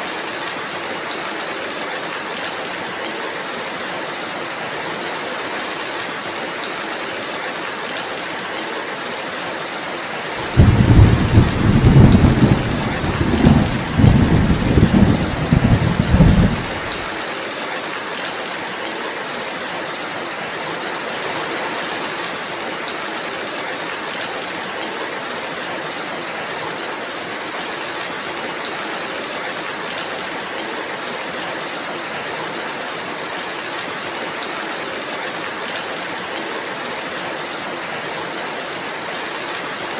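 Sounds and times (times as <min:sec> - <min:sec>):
steady rain falling: 0:00.0 - 0:39.9
thunderclap rumbling: 0:10.4 - 0:17.1.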